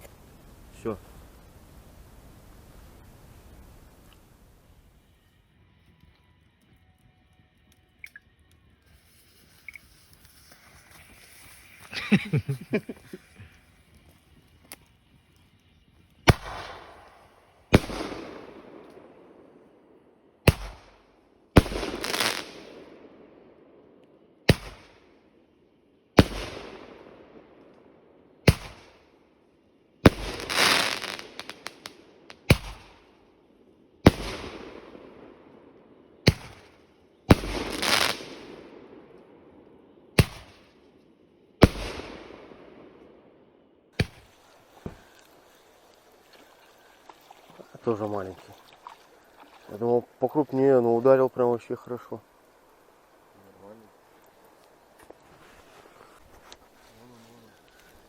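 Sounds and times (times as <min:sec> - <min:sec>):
fireworks crackling: 0:00.0 - 0:06.9, 0:07.8 - 0:25.3, 0:26.1 - 0:29.1, 0:30.0 - 0:58.0
fireworks bangs echoing: 0:16.3 - 0:19.6, 0:20.4 - 0:20.9, 0:21.6 - 0:23.2, 0:26.2 - 0:27.4, 0:30.1 - 0:33.0, 0:34.1 - 0:35.5, 0:36.2 - 0:39.2, 0:40.1 - 0:40.7, 0:41.6 - 0:43.1, 0:44.0 - 0:45.6.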